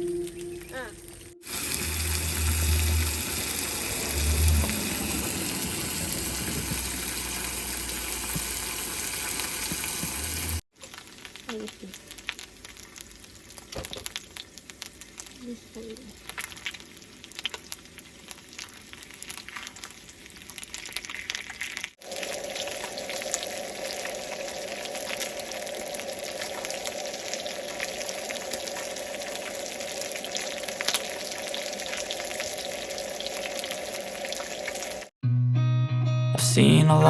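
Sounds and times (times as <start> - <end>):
crackling sizzle: 0.0 - 35.1
running water rushing: 1.4 - 10.6.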